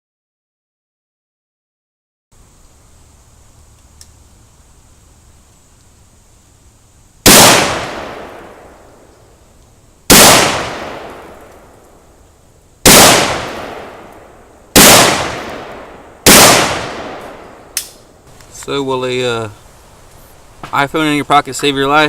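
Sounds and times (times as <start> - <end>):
rifle shots echoing: 7.2 - 9.1, 10.1 - 11.8, 12.8 - 18.0.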